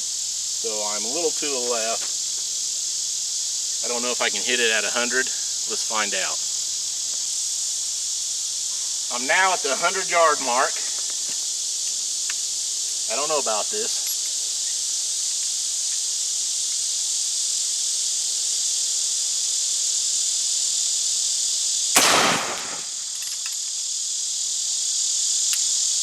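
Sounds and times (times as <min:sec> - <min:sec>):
crickets chirring: 0:00.0 - 0:26.0
gunshot: 0:22.0 - 0:23.0.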